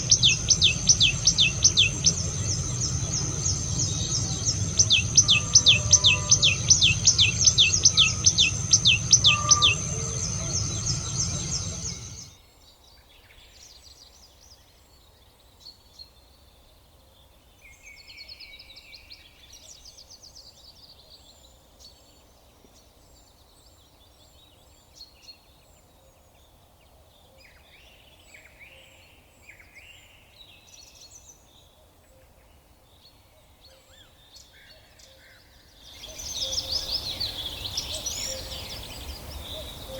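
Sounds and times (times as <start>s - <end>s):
bird descending notes: 0.0s - 12.3s
birds chirping and singing: 0.0s - 12.3s
high-pitched buzz: 0.0s - 12.3s
low rumble: 0.0s - 12.3s.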